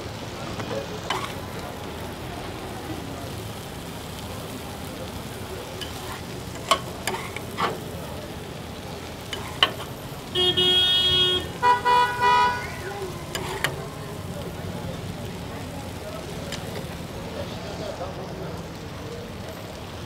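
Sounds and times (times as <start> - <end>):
food frying with steady sizzle: 0.0 - 20.0
vehicle horn: 10.3 - 12.7.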